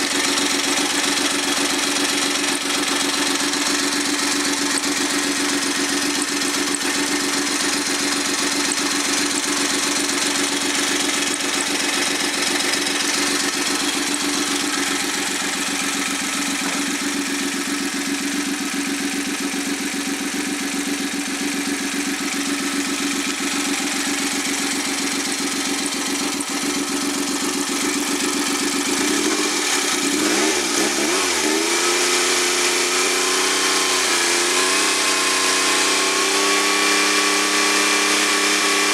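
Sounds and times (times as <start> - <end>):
three-cylinder engine running: 0.0 - 38.9.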